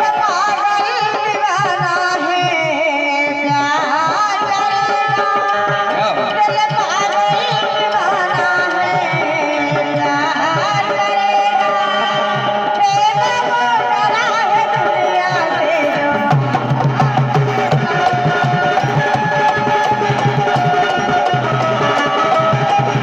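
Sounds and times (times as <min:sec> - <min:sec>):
ornamented folk melody: 0:14.6 - 0:23.0
hand drum beat: 0:15.8 - 0:23.0.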